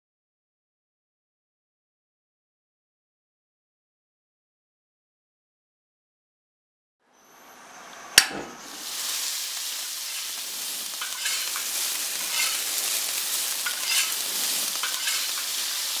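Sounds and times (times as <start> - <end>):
food sizzling in hot oil: 8.6 - 16.0
oil popping and crackling: 8.7 - 16.0.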